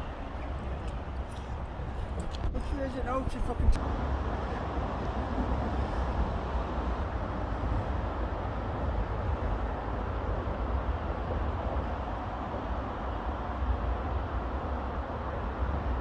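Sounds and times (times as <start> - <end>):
distant road traffic rumble: 0.0 - 12.2.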